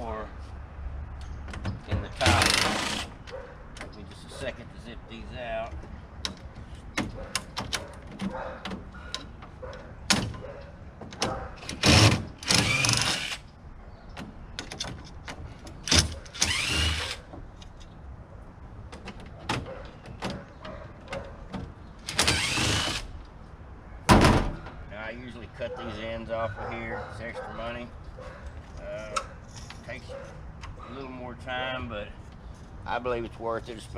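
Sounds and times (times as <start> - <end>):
power drill spinning up: 16.4 - 17.1.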